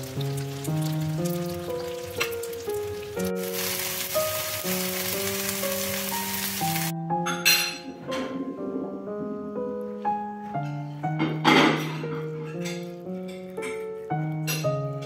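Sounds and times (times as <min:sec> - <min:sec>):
rolls sizzling in oil: 0:00.0 - 0:06.9
background music: 0:00.0 - 0:15.0.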